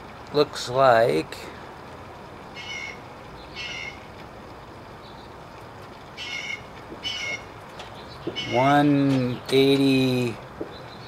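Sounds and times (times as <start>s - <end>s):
low background hiss: 0.0s - 11.0s
short bird calls: 2.6s - 4.1s, 6.2s - 7.5s, 8.1s - 8.7s.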